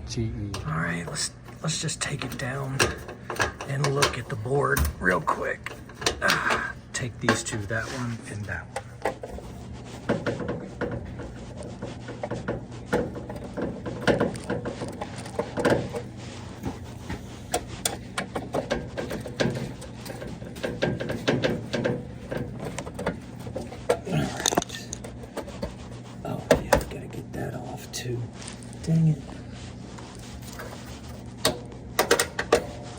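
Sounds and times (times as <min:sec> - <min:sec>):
low steady hum: 0:00.0 - 0:32.9
tool clicking and scraping on screws: 0:00.6 - 0:26.9.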